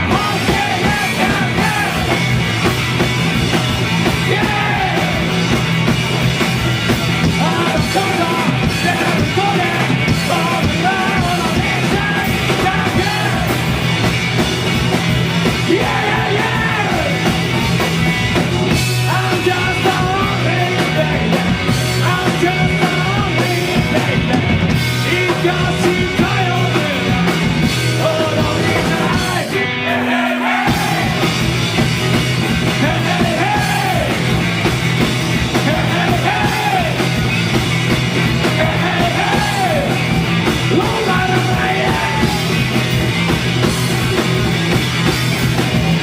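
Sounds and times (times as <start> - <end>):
person shouting lead vocal: 0.0 - 2.2, 4.2 - 5.3, 7.4 - 13.6, 15.6 - 17.3, 32.8 - 34.2, 35.6 - 37.0, 38.6 - 40.0, 40.7 - 42.6
punk rock band playing: 0.0 - 46.0.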